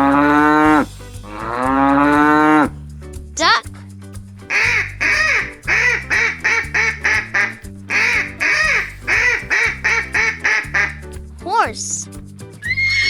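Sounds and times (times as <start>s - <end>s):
children's music with bass line: 0.0s - 13.0s
duck quacking: 4.5s - 11.0s.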